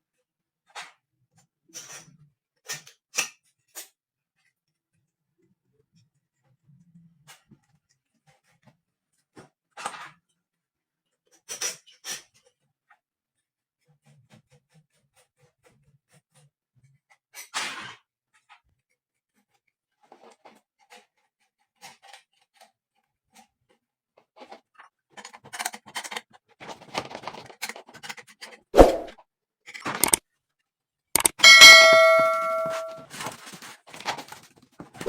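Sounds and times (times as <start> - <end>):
sharp knock: 31.2 - 33.0.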